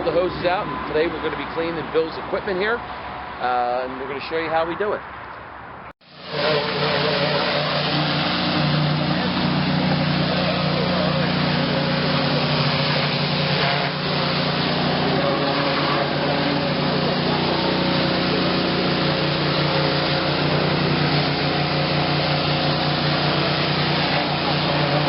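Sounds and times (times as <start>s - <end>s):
high-pressure water spray hiss: 6.0s - 25.0s
pressure washer engine running: 6.0s - 25.0s.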